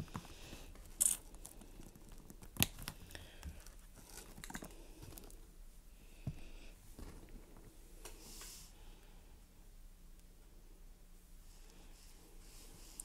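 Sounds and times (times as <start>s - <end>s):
food packaging crinkling: 0.0s - 5.4s.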